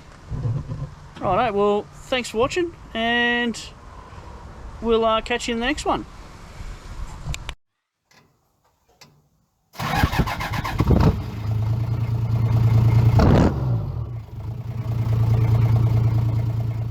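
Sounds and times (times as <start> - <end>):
diesel engine starting and idling: 9.8 - 16.9.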